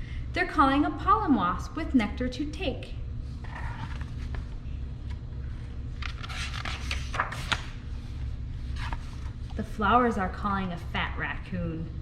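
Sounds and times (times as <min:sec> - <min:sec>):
steady low hum: 0:00.0 - 0:12.0
book pages turning: 0:03.4 - 0:09.6.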